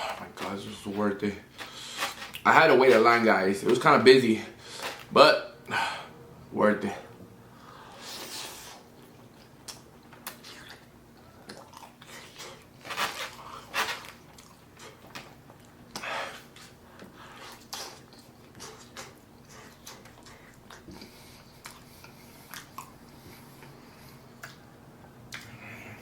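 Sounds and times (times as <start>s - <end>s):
person chewing food: 7.6s - 26.0s.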